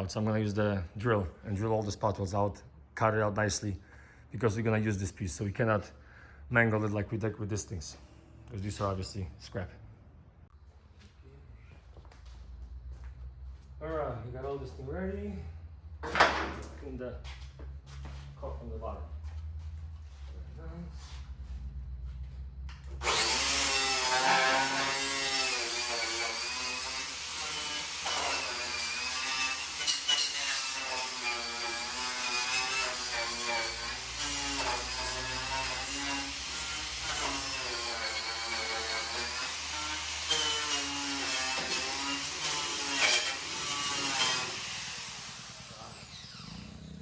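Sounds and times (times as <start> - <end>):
electric drill cutting steel: 23.0 - 46.9.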